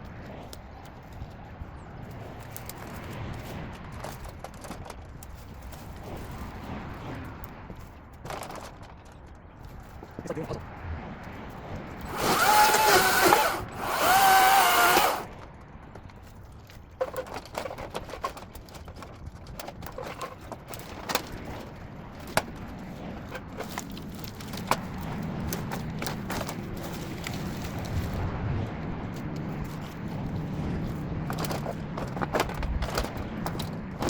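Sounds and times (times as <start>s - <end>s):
branches snapping and crackling: 11.9s - 22.8s
chainsaw whining: 12.1s - 15.3s.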